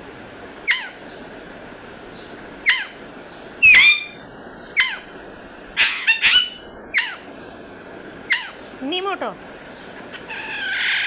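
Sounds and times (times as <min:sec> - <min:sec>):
parrot squawks: 0:00.6 - 0:01.0, 0:02.6 - 0:03.0, 0:03.6 - 0:04.2, 0:04.8 - 0:05.1, 0:05.8 - 0:07.3, 0:08.3 - 0:08.6, 0:10.1 - 0:11.0.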